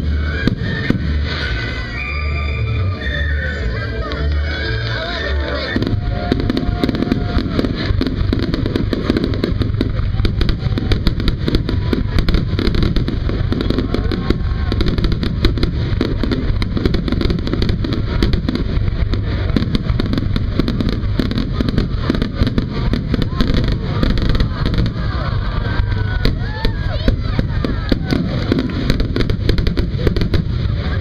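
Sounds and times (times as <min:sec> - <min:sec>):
fireworks bangs and crackles: 0:00.0 - 0:31.0.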